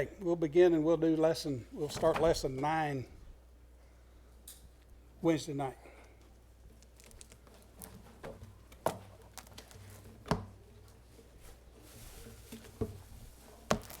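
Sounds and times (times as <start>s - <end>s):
low steady hum: 0.0s - 14.0s
soft rustling: 6.1s - 14.0s.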